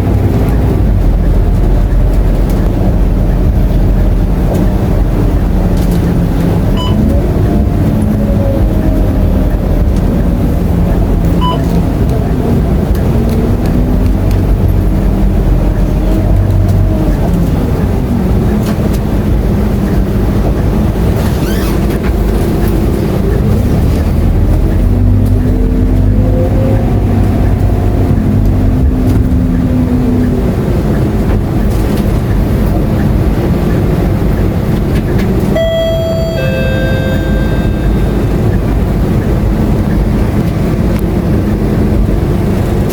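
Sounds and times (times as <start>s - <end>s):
bus diesel engine rumble: 0.0s - 42.9s
two-note electronic chime: 35.6s - 38.6s.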